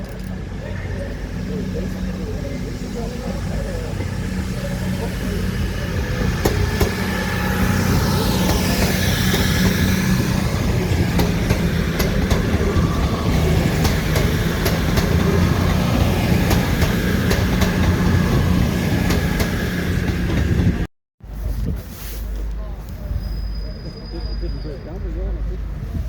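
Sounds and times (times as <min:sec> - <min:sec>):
train rumbling past: 0:00.1 - 0:21.4
wheels clicking over rail joints: 0:03.9 - 0:20.9.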